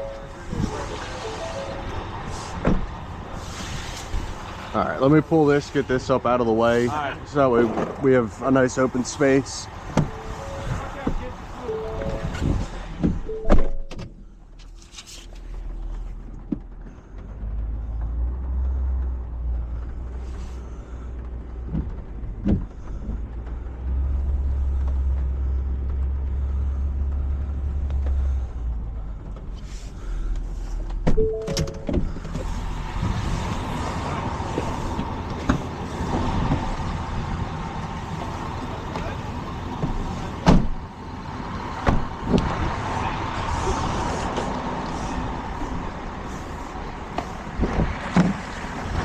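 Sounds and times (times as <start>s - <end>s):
truck engine droning: 0.0s - 49.0s
sharp clicks and thunks: 21.1s - 23.6s, 30.3s - 32.5s.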